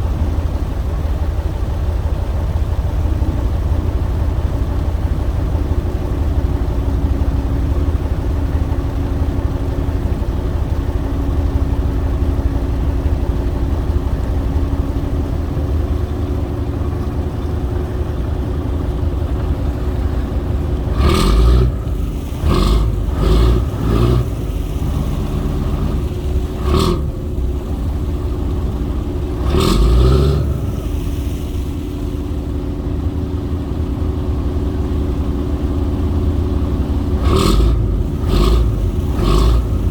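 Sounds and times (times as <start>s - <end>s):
boat engine humming: 0.0s - 39.9s
short loud engine bursts: 18.6s - 32.8s, 37.0s - 39.9s.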